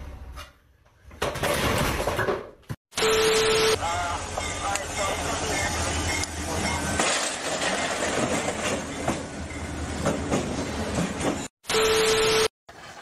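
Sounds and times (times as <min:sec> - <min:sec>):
train wheels clacking on rails: 0:07.7 - 0:11.5.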